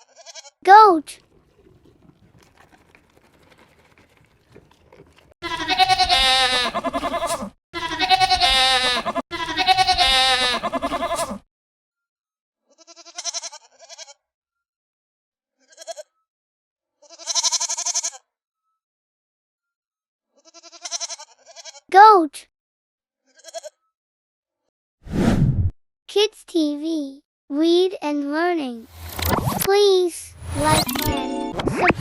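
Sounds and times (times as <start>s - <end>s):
goats bleating: 5.4s - 11.4s, 12.8s - 14.1s, 20.4s - 21.8s.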